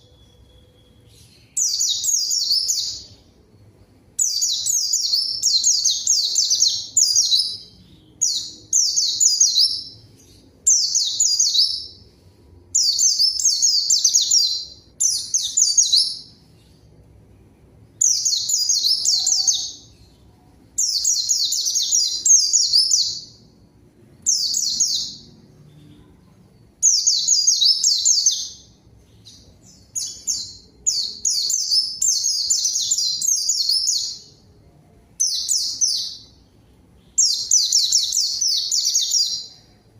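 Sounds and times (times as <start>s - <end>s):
bird twittering song: 0.0s - 3.4s, 4.2s - 12.1s, 12.7s - 16.9s, 24.2s - 34.4s, 35.2s - 39.8s.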